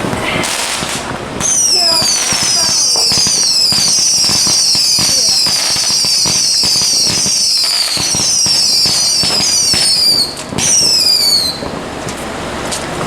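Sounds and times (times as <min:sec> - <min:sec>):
firework crackling pops: 0:00.0 - 0:13.0
firework whistles falling in pitch: 0:01.4 - 0:11.8.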